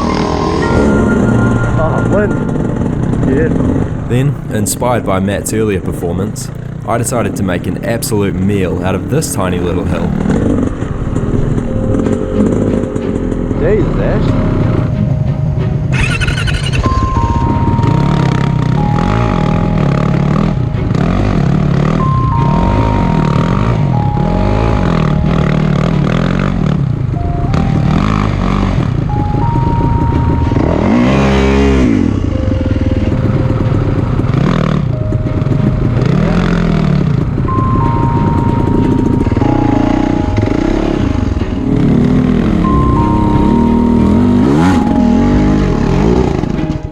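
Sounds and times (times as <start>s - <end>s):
background music: 0.0s - 46.9s.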